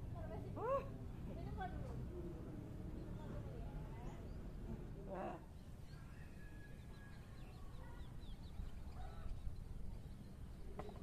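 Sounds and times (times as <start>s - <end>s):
faint bird chirps: 5.4s - 11.0s.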